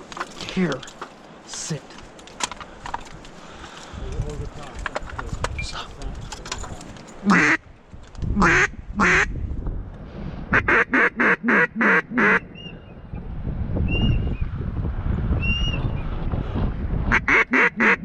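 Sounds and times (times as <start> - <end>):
duck quacking: 7.3 - 7.6, 8.4 - 9.3, 10.6 - 12.4, 17.1 - 18.0.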